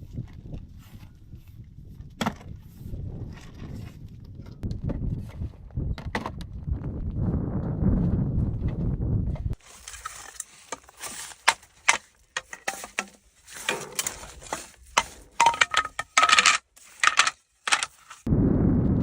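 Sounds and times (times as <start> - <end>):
small hard objects clinking: 9.6 - 18.3.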